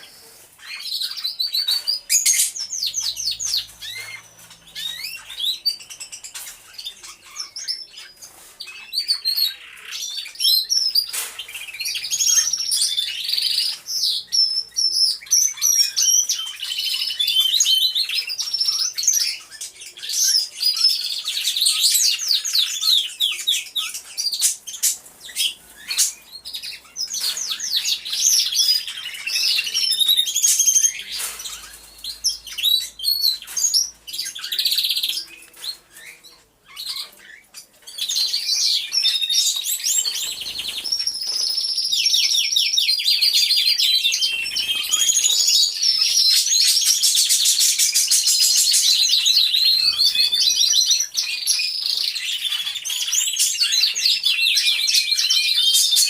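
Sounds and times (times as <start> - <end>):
canaries singing: 0.0 - 56.0.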